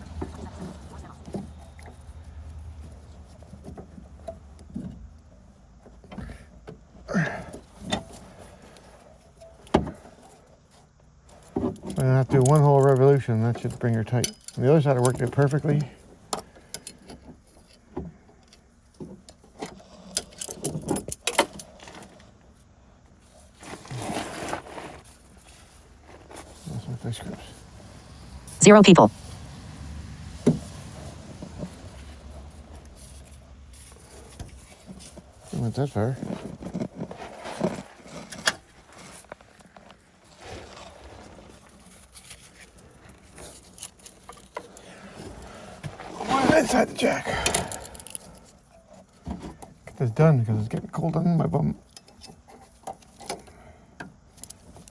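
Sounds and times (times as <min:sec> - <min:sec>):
soft rustle: 0:21.6 - 0:49.9
hand tool clicks and scraping: 0:41.7 - 0:49.8.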